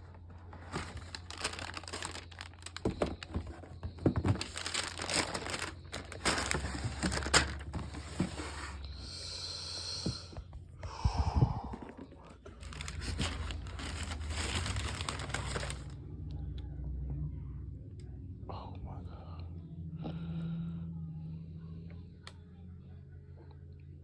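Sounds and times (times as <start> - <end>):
paper crinkling: 0.3 - 8.8, 11.8 - 16.0.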